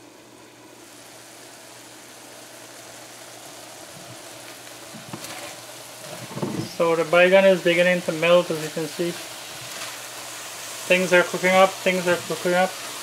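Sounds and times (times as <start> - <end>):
food sizzling in a pan: 0.0 - 13.0
spatula scraping: 5.0 - 6.7.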